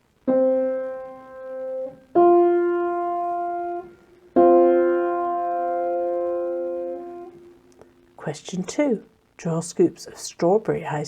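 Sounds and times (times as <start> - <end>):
piano notes: 0.1 - 8.1.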